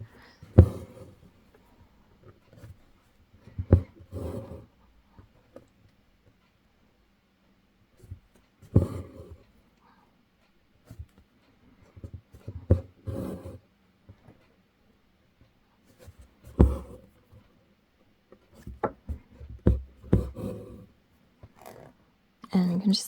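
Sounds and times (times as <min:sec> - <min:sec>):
taps on taut fabric: 0:16.5 - 0:17.0, 0:18.6 - 0:20.4
thread rasping through fabric: 0:21.5 - 0:22.0.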